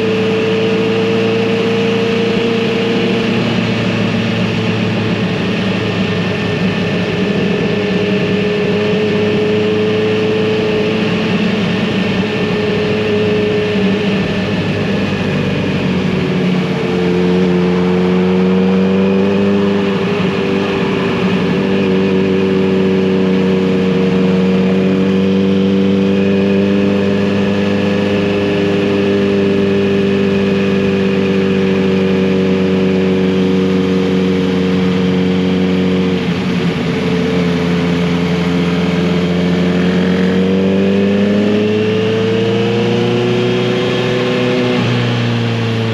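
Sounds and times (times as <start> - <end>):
motorcycle engine cruising: 0.0 - 45.9.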